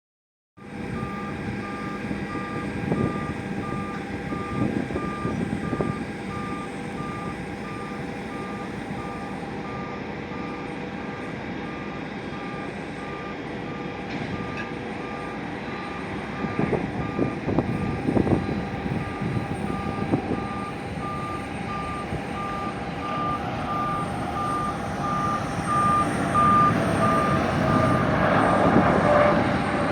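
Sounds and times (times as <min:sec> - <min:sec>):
reversing alarm beeping: 0:00.6 - 0:29.9.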